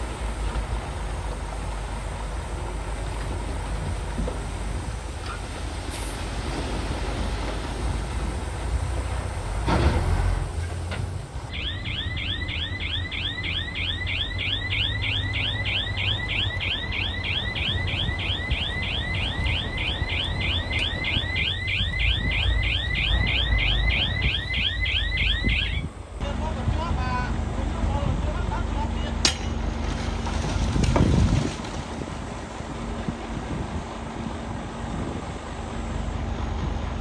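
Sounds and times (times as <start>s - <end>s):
diesel machinery rumbling: 0.0s - 37.0s
reversing alarm chirping: 11.5s - 25.9s.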